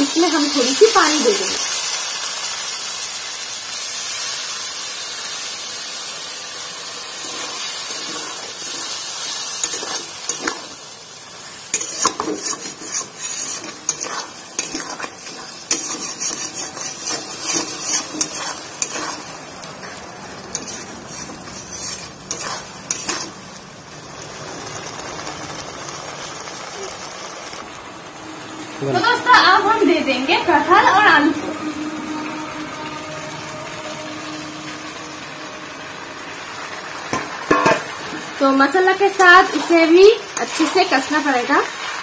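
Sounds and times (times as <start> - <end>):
masala sizzling in oil: 0.0 - 42.0
spatula scraping a pan: 7.2 - 10.8, 11.4 - 23.6, 39.0 - 41.5.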